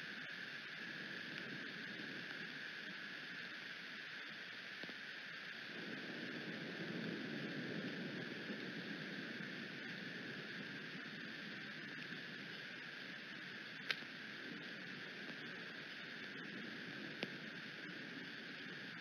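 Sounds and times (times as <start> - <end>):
steady rain: 0.0 - 19.0
wind noise on microphone: 5.6 - 19.0.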